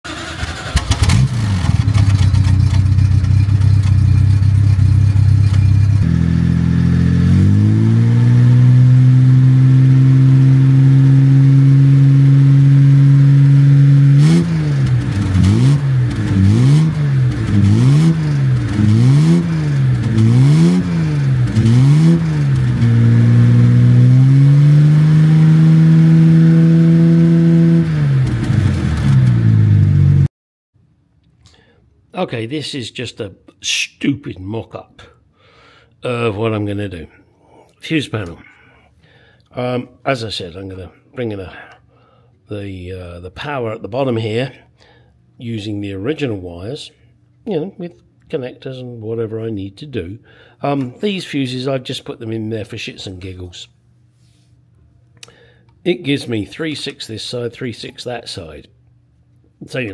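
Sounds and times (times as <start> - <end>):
car engine revving: 0.1 - 30.3.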